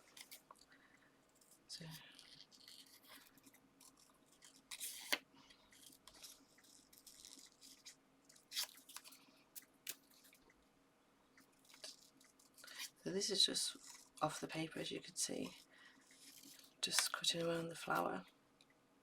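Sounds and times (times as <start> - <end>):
paper rustling: 1.4 - 10.4, 15.2 - 18.1.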